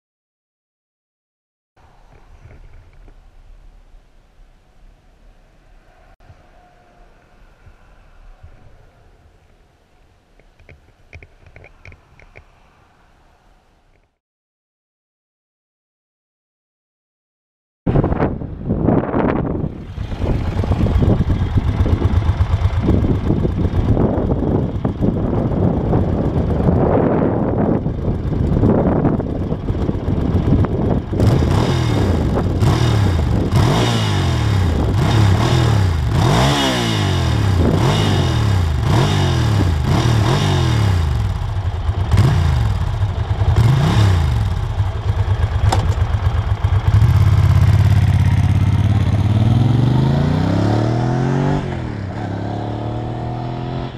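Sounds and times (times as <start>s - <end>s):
road and wind noise: 1.8s - 14.2s, 17.9s - 53.9s
motorcycle engine revving: 19.1s - 53.9s.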